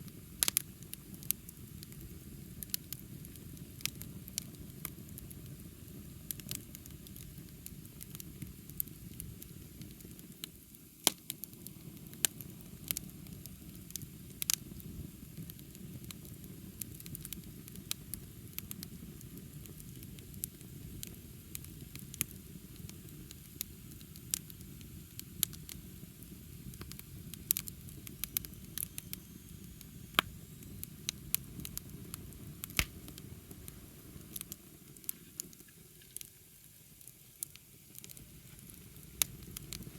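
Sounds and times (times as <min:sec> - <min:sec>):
burning wood crackling and popping: 0:00.0 - 0:39.9.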